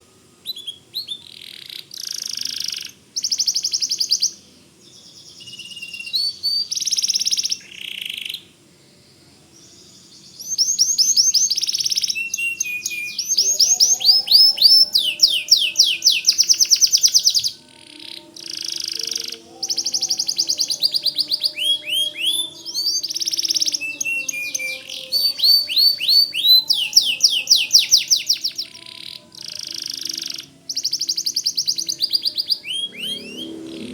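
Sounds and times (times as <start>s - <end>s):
canary singing trills: 0.0s - 33.9s.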